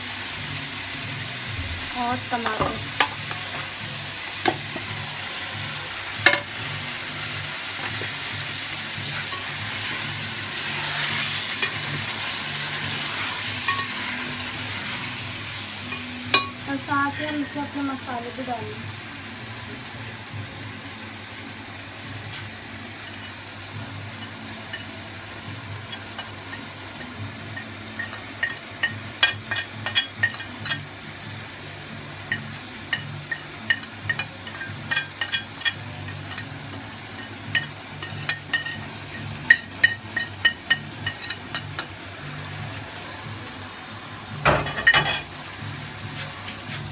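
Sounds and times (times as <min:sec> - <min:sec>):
food sizzling in oil: 0:00.0 - 0:46.9
spoon clinking on plate and pot: 0:10.9 - 0:12.0, 0:13.2 - 0:14.1, 0:15.9 - 0:16.6, 0:25.9 - 0:30.9, 0:32.3 - 0:36.6, 0:37.2 - 0:41.9, 0:44.5 - 0:45.3.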